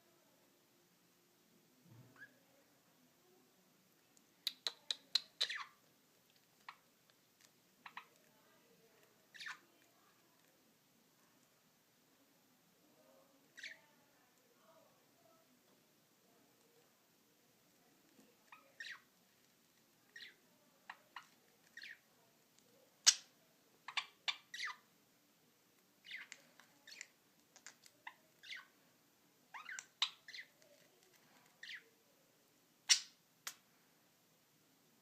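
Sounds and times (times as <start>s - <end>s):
budgerigars chirping and squawking: 4.5s - 5.8s, 9.3s - 9.6s, 18.5s - 19.1s, 20.2s - 22.0s, 23.9s - 24.8s, 26.0s - 27.1s, 28.0s - 28.7s, 29.5s - 30.6s.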